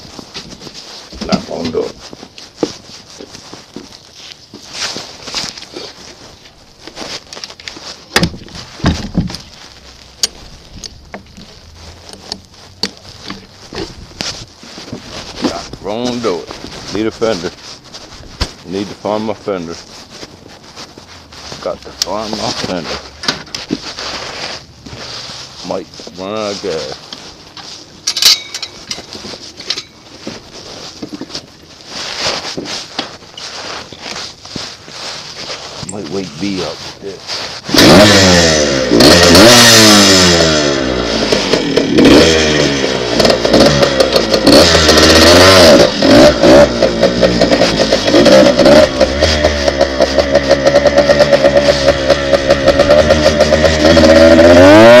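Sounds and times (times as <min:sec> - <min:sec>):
rustling: 0:00.0 - 0:55.0
loud thuds: 0:08.1 - 0:09.5
clicks and knocks of handled objects: 0:26.9 - 0:31.6
sharp metal clank: 0:28.1 - 0:29.1.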